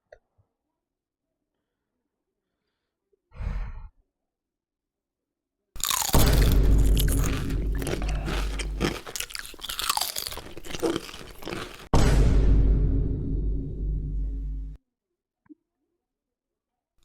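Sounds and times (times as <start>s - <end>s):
crunching and chewing chips: 5.8s - 11.9s.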